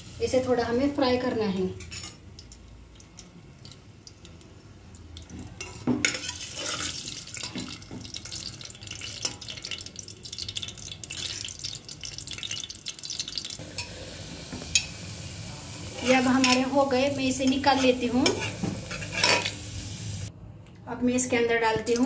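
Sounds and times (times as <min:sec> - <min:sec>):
potatoes frying in oil: 0:02.4 - 0:20.3
metal ladle scraping pot: 0:05.6 - 0:07.5, 0:17.5 - 0:19.6.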